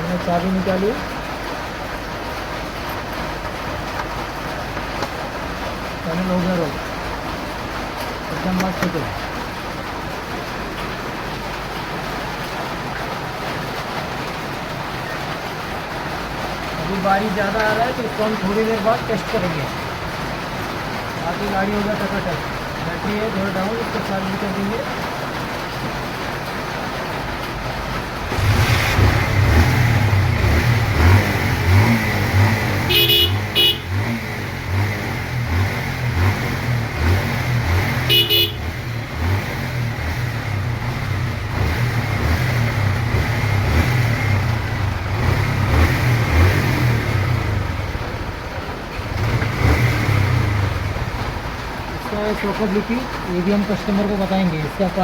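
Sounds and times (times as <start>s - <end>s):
motorcycle engine throbbing: 27.9s - 52.0s
horn beeps: 32.8s - 34.0s, 38.1s - 38.7s.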